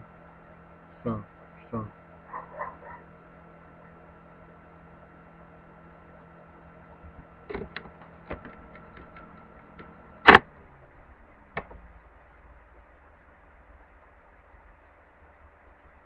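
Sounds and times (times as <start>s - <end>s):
cooling fan humming and whining: 0.0s - 16.0s
loud switch click: 10.2s - 10.5s.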